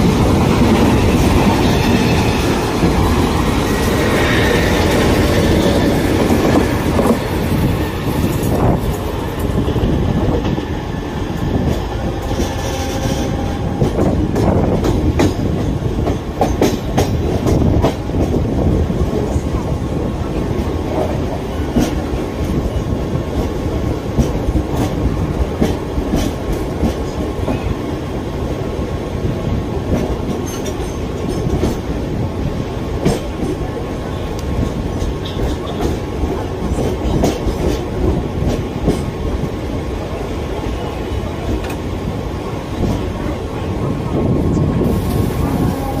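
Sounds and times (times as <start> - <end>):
train wheels rumbling on track: 0.0 - 46.0
wheels clacking over rail joints: 32.9 - 39.5.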